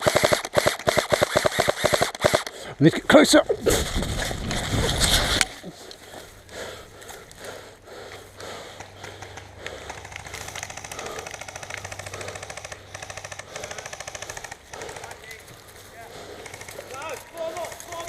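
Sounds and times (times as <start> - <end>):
airsoft gun automatic fire: 0.0 - 2.5.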